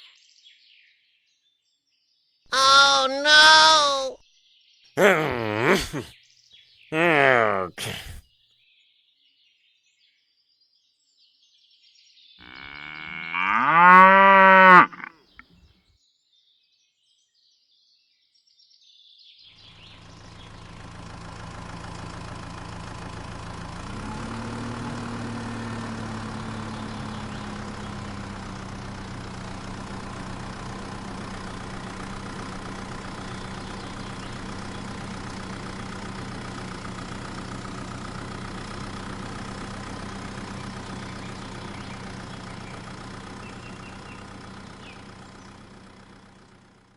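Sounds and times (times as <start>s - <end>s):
cow mooing: 12.4s - 15.1s
engine running: 19.7s - 46.9s.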